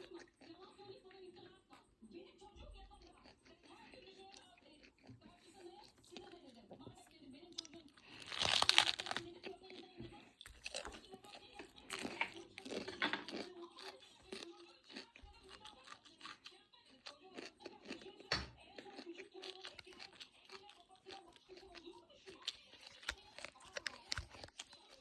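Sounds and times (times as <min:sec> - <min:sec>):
person chewing cabbage crunches: 0:07.6 - 0:25.0.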